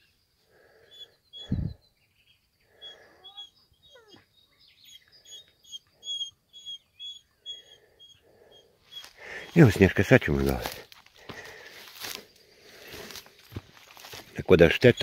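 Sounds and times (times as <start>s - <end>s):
songbirds chirping: 0.0s - 15.0s
footsteps on rocky path: 9.0s - 14.4s.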